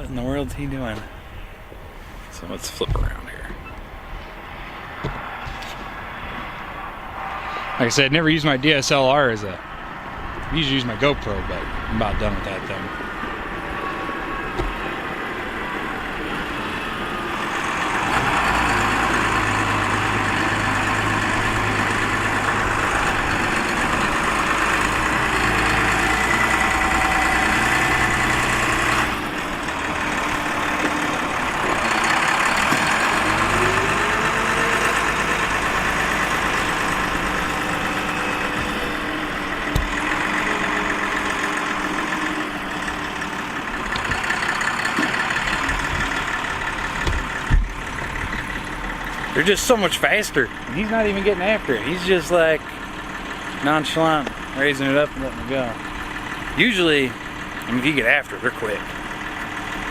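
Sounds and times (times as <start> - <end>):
heavy diesel machinery engine: 0.0 - 59.9
rising whine: 3.4 - 11.0, 12.5 - 44.3.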